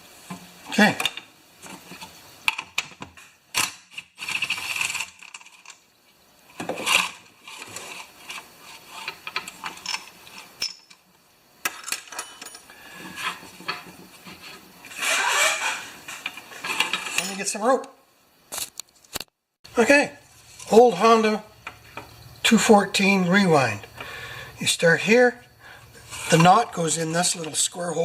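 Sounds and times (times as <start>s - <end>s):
clicks and scrapes of mower parts: 0.2s - 5.8s, 6.5s - 17.5s, 20.3s - 20.9s, 25.8s - 28.0s.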